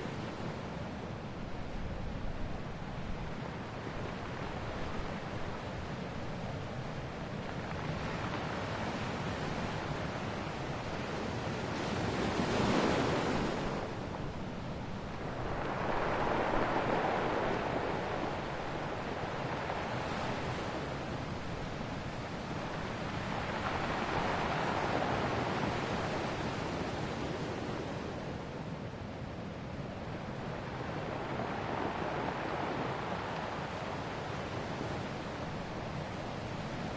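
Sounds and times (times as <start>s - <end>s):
ocean waves breaking: 7.6s - 28.6s, 30.0s - 36.9s.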